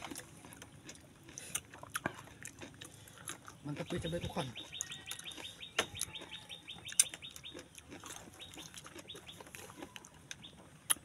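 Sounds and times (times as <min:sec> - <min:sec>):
birds chirping: 0:03.0 - 0:11.0.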